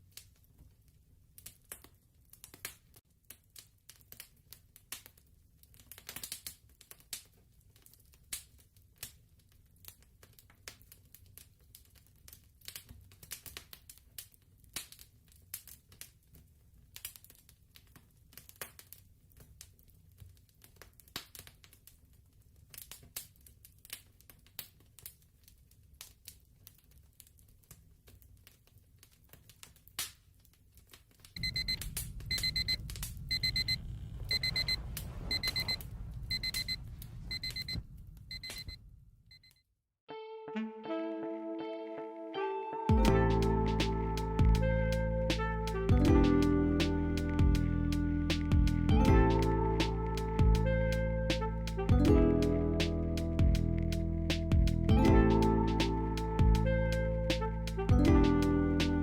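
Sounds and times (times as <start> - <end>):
fireplace crackling: 0.0 - 39.1, 43.0 - 59.0
low steady rumble: 31.4 - 39.2.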